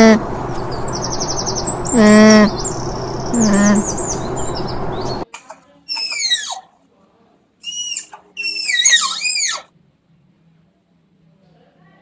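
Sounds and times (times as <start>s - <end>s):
birds chirping: 0.0s - 5.2s
high downward-sweeping calls: 0.0s - 5.2s
outdoor background noise: 0.0s - 12.0s.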